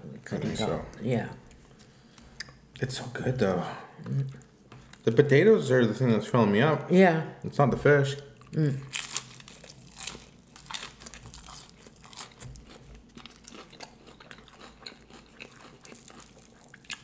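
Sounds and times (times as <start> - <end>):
crunchy chewing: 8.4 - 17.0.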